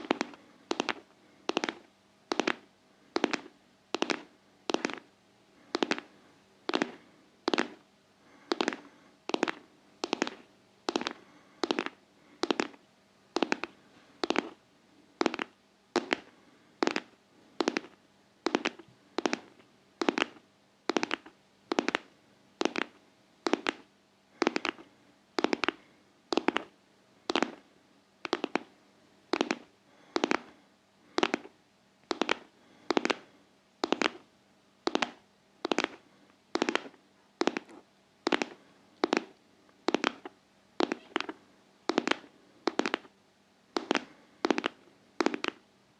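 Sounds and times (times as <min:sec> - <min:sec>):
rhythmic tapping in pairs: 0:00.0 - 0:02.6, 0:03.2 - 0:05.0, 0:15.2 - 0:24.8, 0:28.2 - 0:28.7, 0:33.8 - 0:34.2, 0:36.6 - 0:37.7, 0:41.9 - 0:43.1.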